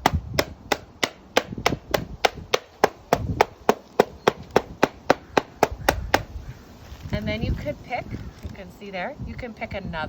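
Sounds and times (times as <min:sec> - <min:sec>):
hammer tapping: 0:00.4 - 0:06.3.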